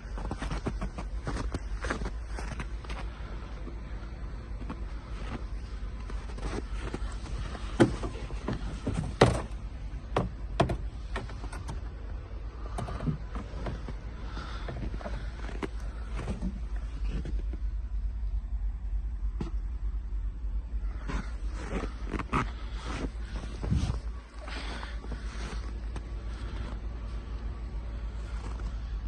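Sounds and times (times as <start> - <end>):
steady low rumble: 0.0 - 29.0
handling clicks and knocks on truck: 7.7 - 12.0.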